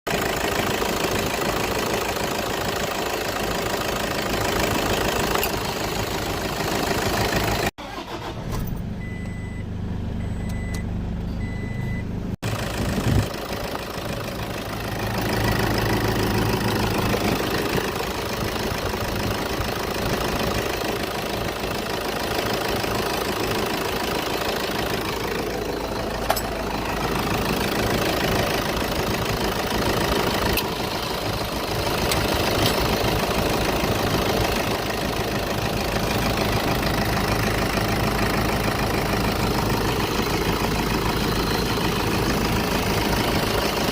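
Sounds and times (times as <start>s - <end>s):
car engine idling: 0.1s - 43.9s
high beeps: 9.0s - 12.1s.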